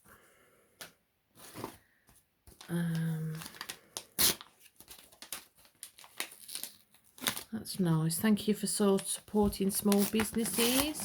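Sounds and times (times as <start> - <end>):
paper crinkling and tearing: 3.3 - 7.5, 9.7 - 11.0.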